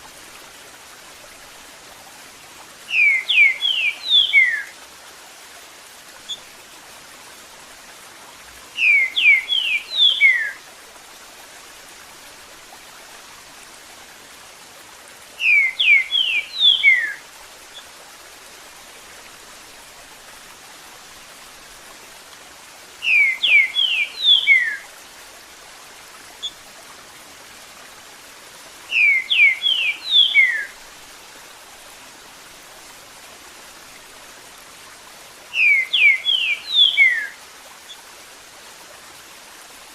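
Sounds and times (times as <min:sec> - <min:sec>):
running water: 0:00.0 - 0:39.9
bird whistled song: 0:02.9 - 0:04.7, 0:08.8 - 0:10.6, 0:15.4 - 0:17.2, 0:23.0 - 0:24.8, 0:28.9 - 0:30.7, 0:35.6 - 0:37.4.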